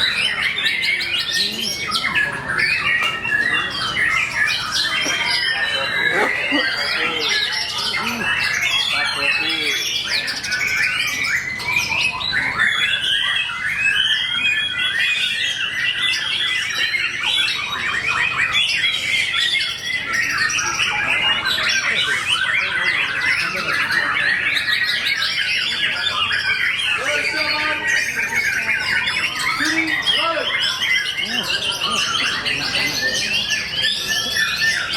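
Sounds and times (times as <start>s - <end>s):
birds singing in chorus: 0.0s - 34.9s.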